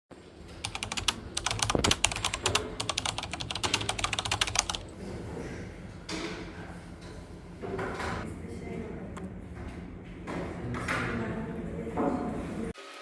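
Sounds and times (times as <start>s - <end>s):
computer keyboard typing: 0.4s - 4.9s.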